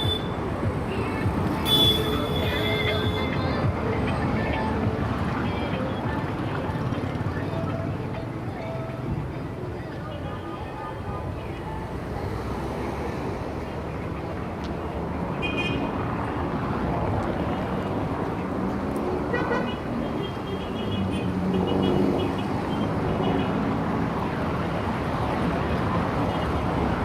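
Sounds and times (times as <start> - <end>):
car horn toots: 0.0 - 0.4, 1.6 - 3.3
traffic rumble: 0.0 - 27.0.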